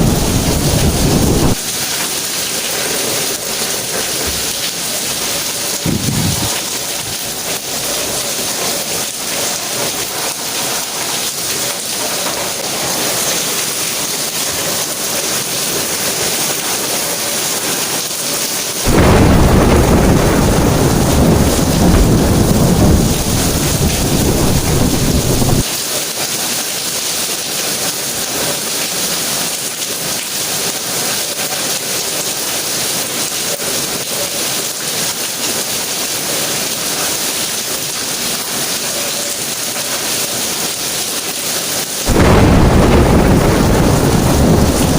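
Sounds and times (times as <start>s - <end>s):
deep thunder rumble: 0.0s - 1.6s, 5.8s - 7.4s, 18.9s - 25.6s, 42.1s - 44.9s
steady rain falling: 0.0s - 44.9s.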